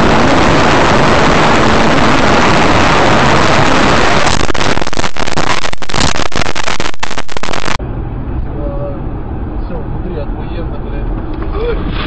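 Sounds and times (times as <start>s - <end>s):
vehicle rushing noise: 11.0s - 12.0s.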